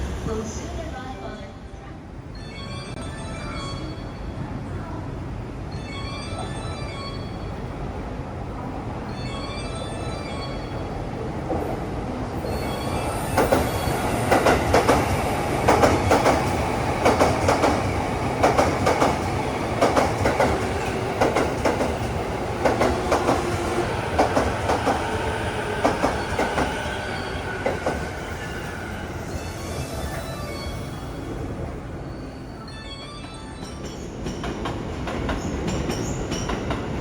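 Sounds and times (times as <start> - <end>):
train wheels clacking over rail joints: 14.3 - 23.6, 24.2 - 25.0.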